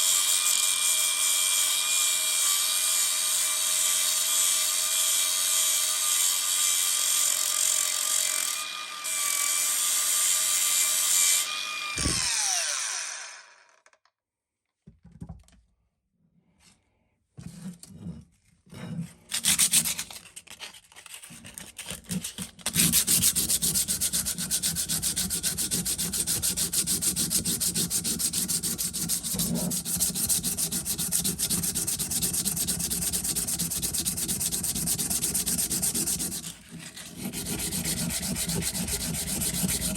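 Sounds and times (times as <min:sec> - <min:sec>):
power tool whining: 0:11.4 - 0:13.8
knocks and handling sounds: 0:14.7 - 0:15.8
abrasive rubbing like sanding: 0:22.7 - 0:39.9.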